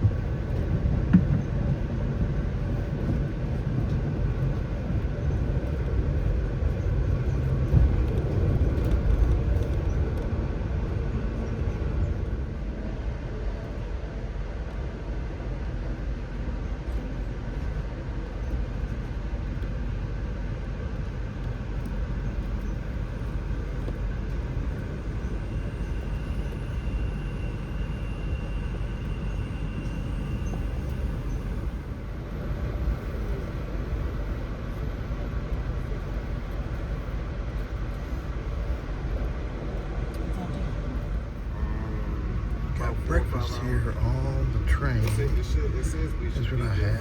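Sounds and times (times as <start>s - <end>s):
train rumbling and rolling: 0.0s - 47.0s
faint high whine: 22.6s - 35.0s.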